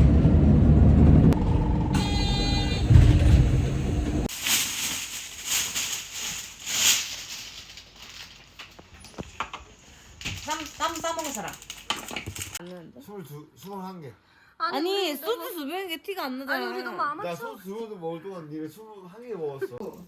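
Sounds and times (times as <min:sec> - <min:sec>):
moving vehicle rumble: 0:00.0 - 0:06.6
beeping tone: 0:01.4 - 0:03.2
soft rustling: 0:04.3 - 0:11.7.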